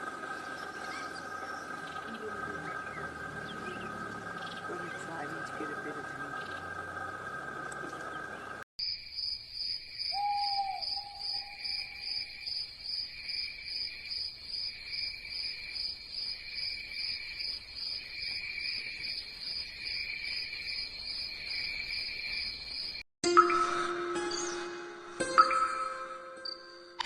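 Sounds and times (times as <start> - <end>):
insect chirping: 0.0 - 23.0
brief lower insect call: 6.0 - 13.9.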